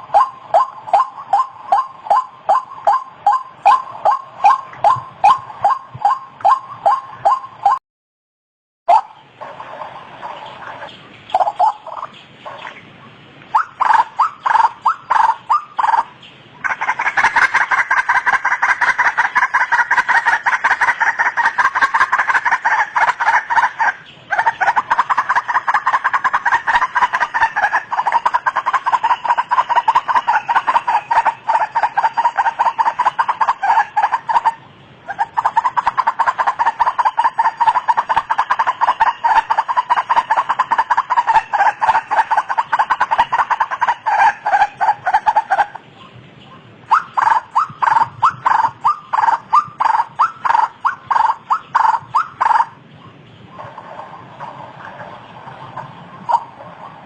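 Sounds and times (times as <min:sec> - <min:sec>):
waterhen calling: 0:00.0 - 0:07.8, 0:08.9 - 0:57.0.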